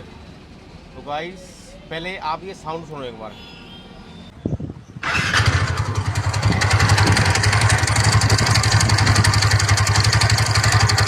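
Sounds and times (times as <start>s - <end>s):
scooter engine idling with rattle: 5.0s - 11.0s.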